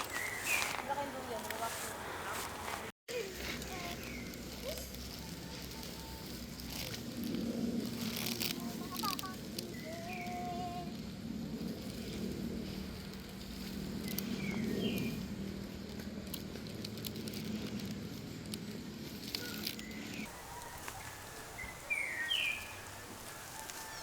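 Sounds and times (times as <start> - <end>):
birds chirping: 0.0 - 2.9, 14.0 - 15.3, 19.3 - 24.0.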